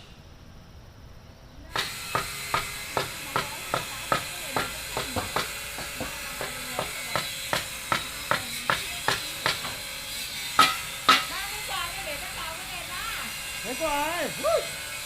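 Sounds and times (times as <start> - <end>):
hammer blows on wood: 1.7 - 11.8.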